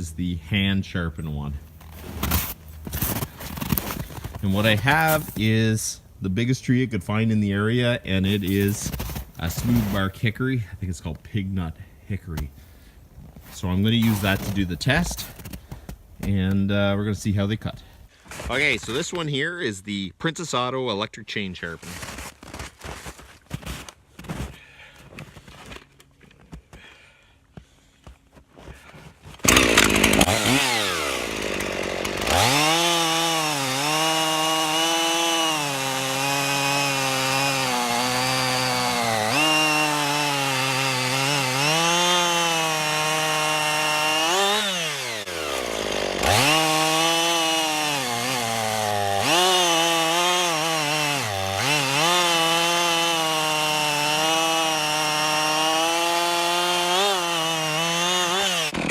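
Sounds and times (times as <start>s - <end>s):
chainsaw cutting wood: 1.7s - 5.6s, 8.2s - 10.2s, 13.5s - 15.6s, 29.3s - 58.9s.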